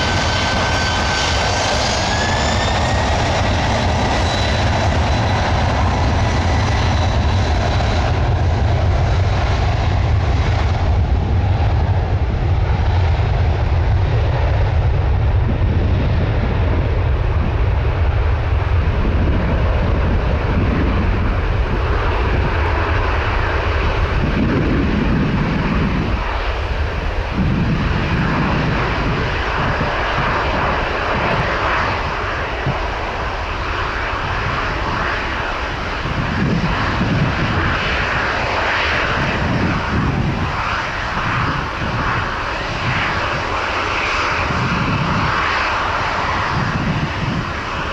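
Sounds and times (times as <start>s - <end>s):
jet airliner engines roaring: 0.0s - 47.9s.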